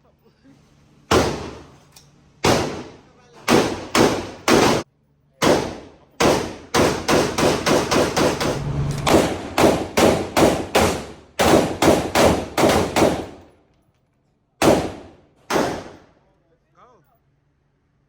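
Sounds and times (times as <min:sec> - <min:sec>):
gunshots: 0:02.4 - 0:04.8, 0:05.4 - 0:13.5, 0:14.6 - 0:16.0.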